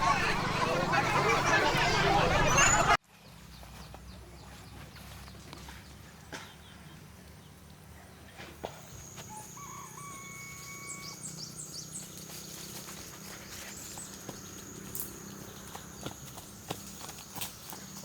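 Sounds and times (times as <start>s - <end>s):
rooster crowing: 0.0s - 3.0s, 9.0s - 11.4s.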